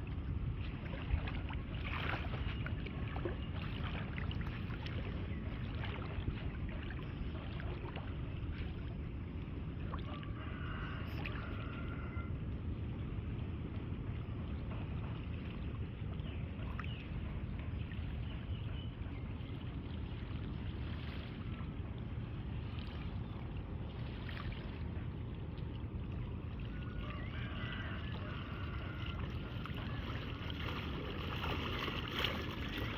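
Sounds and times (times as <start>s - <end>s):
faint water sounds: 0.0s - 32.9s
low rumbling noise: 11.0s - 32.9s.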